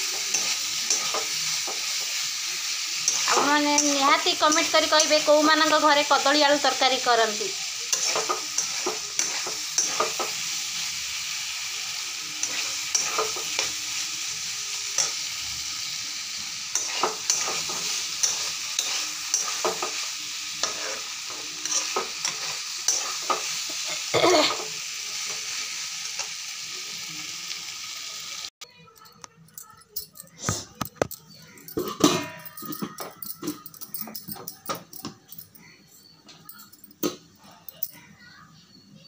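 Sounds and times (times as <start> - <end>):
curry sizzling in a pan: 0.0 - 28.6
spatula scraping a metal pan: 20.6 - 23.4.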